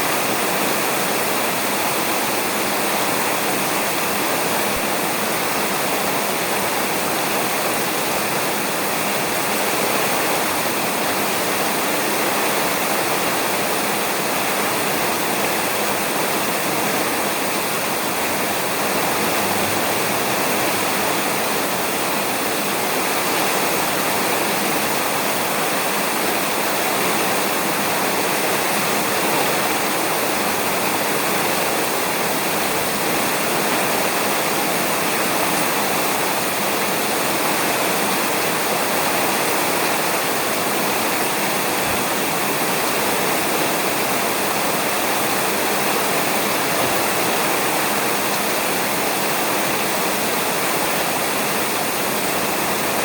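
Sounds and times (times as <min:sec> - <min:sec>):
rain falling on a roof: 0:00.0 - 0:53.0.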